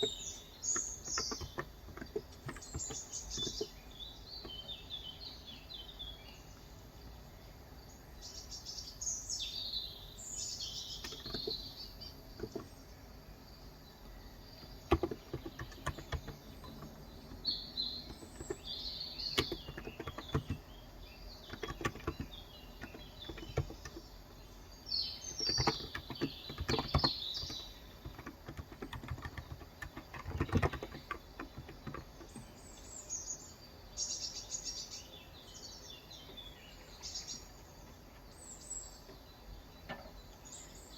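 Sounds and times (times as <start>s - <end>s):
keyboard typing: 0.0s - 3.8s, 11.0s - 11.6s, 12.4s - 12.7s, 14.6s - 20.7s, 21.4s - 24.1s, 25.3s - 32.5s
small birds chirping: 0.0s - 40.9s.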